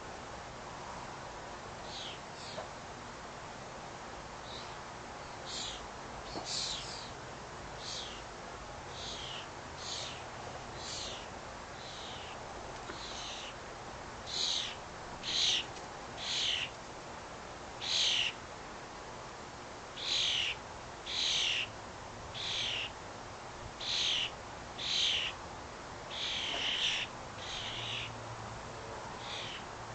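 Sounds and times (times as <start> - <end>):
bird calling: 1.8 - 2.7, 4.4 - 7.2, 7.8 - 8.3, 8.9 - 13.6, 14.2 - 16.7, 17.8 - 18.4, 20.0 - 21.8, 22.4 - 23.0, 23.8 - 25.4, 26.1 - 28.2, 29.2 - 29.7.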